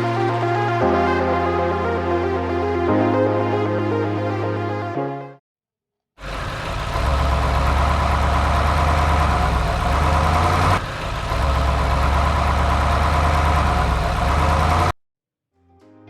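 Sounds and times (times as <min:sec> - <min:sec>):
excavator engine idling: 0:06.2 - 0:14.9.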